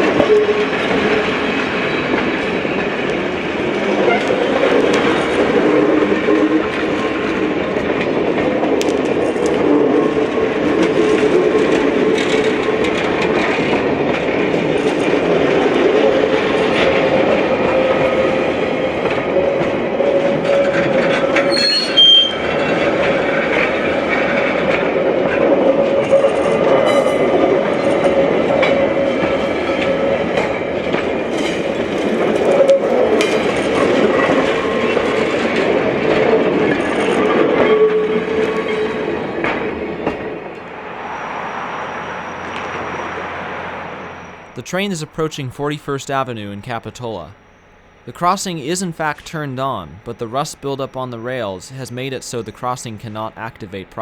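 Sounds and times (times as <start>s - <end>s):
wheel squeal: 21.4s - 22.5s
sharp high squeak: 21.5s - 22.4s.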